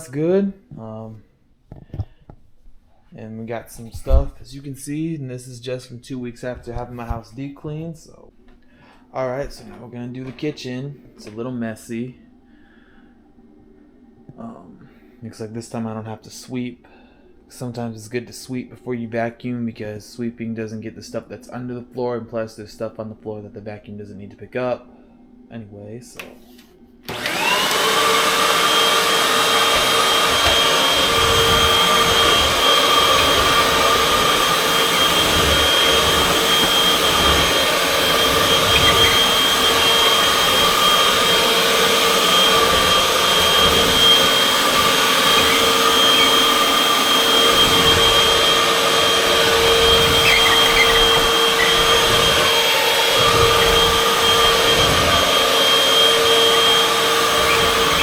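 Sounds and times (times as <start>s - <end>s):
vacuum cleaner running: 27.0s - 58.0s
vacuum bumping on floor: 27.1s - 58.0s.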